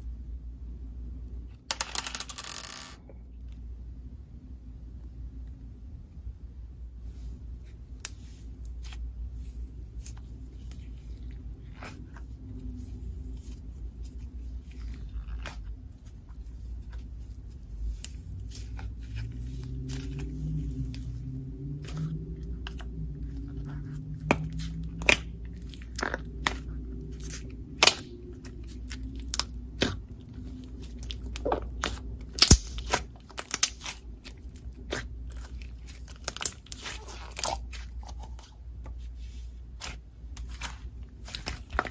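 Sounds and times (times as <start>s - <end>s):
steady low hum: 0.0s - 1.7s, 3.0s - 41.9s
slime squishing with sticky pops: 10.0s - 41.9s.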